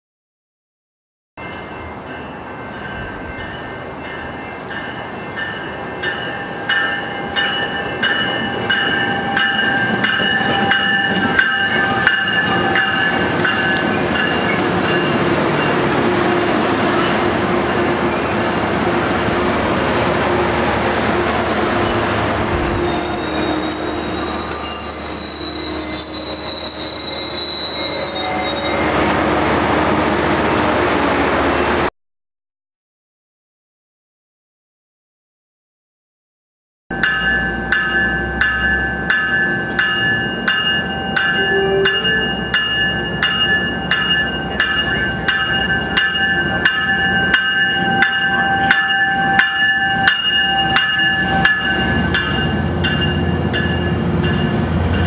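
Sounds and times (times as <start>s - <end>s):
train rumble: 1.4s - 23.7s, 37.0s - 55.0s
high wheel squeal: 16.3s - 29.0s.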